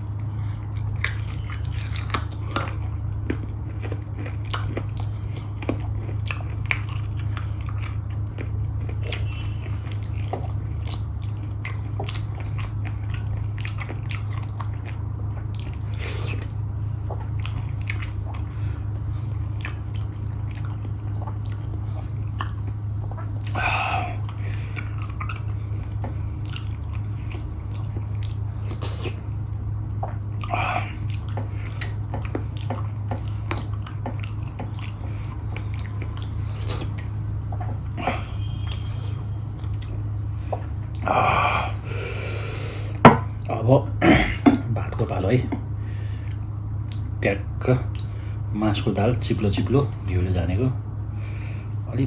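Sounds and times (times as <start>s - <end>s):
wet mouth clicks: 0.0s - 18.6s, 19.6s - 39.0s, 46.2s - 47.1s
person chewing food: 0.0s - 43.6s, 44.3s - 47.2s, 47.9s - 50.0s
steady low hum: 0.0s - 52.0s.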